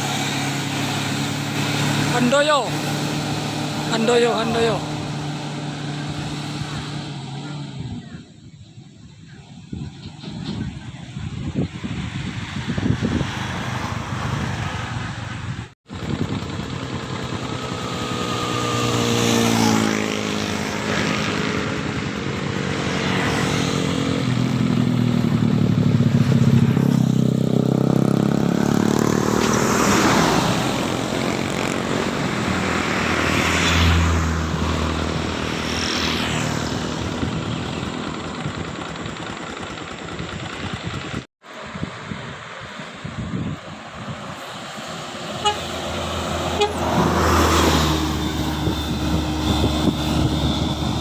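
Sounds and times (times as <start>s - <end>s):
vehicles passing on road: 0.0s - 51.0s
heavy low engine rumble: 34.4s - 51.0s.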